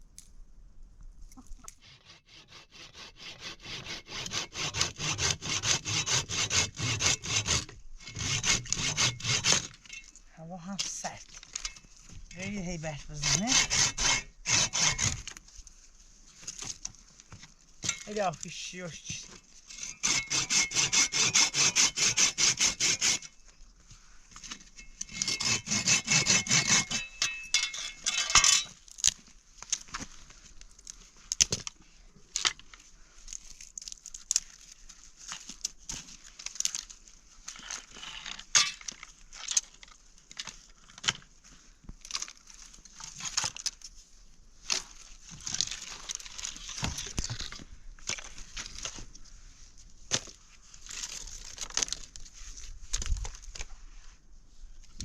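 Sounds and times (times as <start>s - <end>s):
hand saw cutting firewood: 1.6s - 10.0s, 12.4s - 15.4s, 17.4s - 23.4s, 24.3s - 31.8s.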